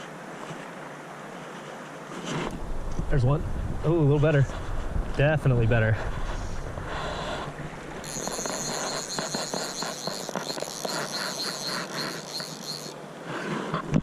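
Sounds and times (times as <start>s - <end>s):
running water: 7.4s - 14.0s
pulsing insect trill: 8.0s - 13.0s.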